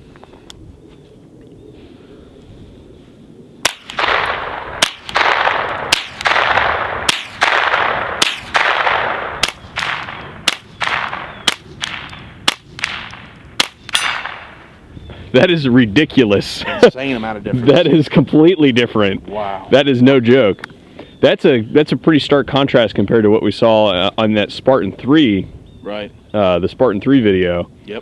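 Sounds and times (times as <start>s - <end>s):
rushing echo: 3.4s - 15.2s
suppressed rifle shots: 3.6s - 14.7s.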